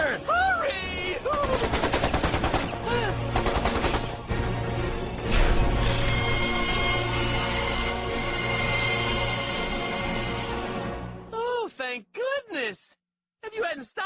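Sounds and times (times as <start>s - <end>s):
dramatic background music: 0.0s - 11.6s
rapid automatic gunfire: 1.2s - 4.3s.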